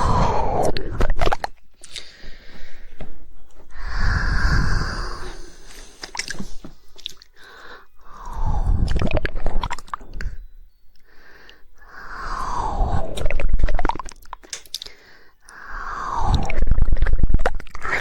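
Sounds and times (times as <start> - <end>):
wet mouth noises: 0.0 - 2.2, 3.7 - 7.4, 8.0 - 10.4, 11.5 - 18.0
tongue clicks: 5.0 - 7.4, 8.0 - 18.0.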